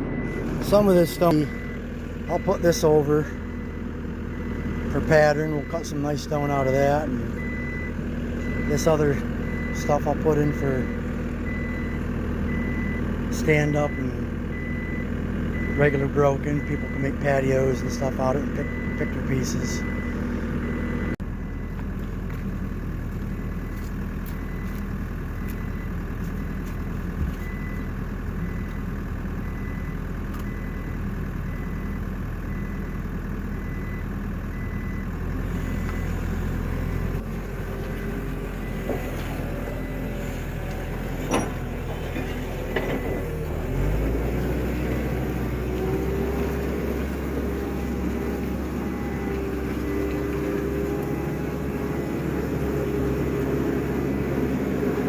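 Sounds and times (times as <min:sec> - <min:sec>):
heavy machine engine running: 0:00.0 - 0:55.0
faint repeated beep: 0:00.1 - 0:02.7, 0:07.4 - 0:13.0, 0:13.6 - 0:16.0, 0:18.5 - 0:21.8, 0:27.4 - 0:33.0, 0:33.6 - 0:37.2.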